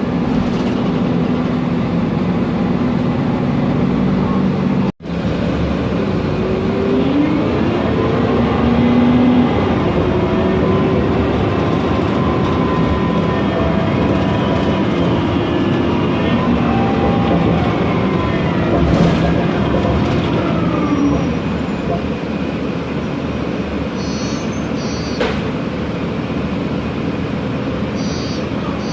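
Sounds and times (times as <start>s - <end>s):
bus engine and gearbox whining: 0.0s - 28.9s.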